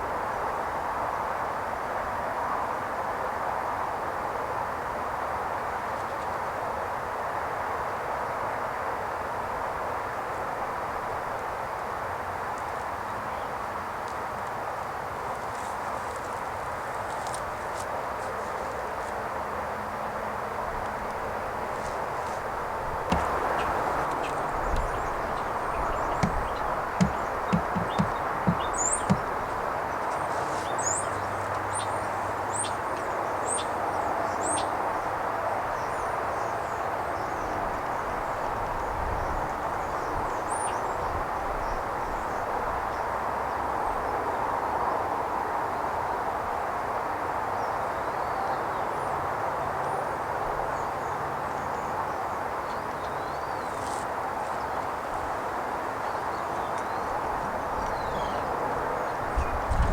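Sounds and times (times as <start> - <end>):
small birds chirping: 22.8 - 32.8.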